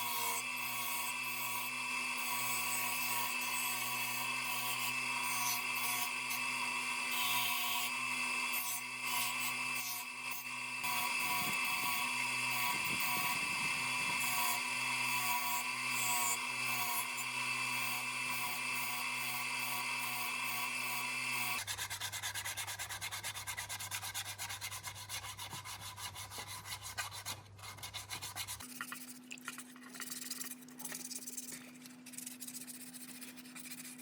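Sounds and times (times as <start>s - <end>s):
power tool motor whining: 0.0s - 21.6s.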